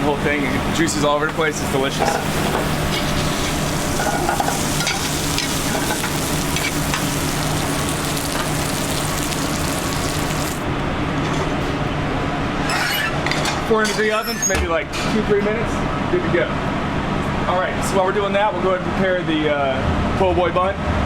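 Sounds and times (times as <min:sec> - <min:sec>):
crab sizzling in oil: 0:00.0 - 0:10.7.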